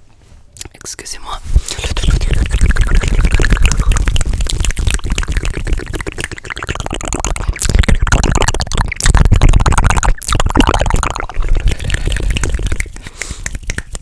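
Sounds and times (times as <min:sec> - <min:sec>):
mouth clicks: 0:01.7 - 0:14.0
hands rubbing: 0:11.6 - 0:14.0.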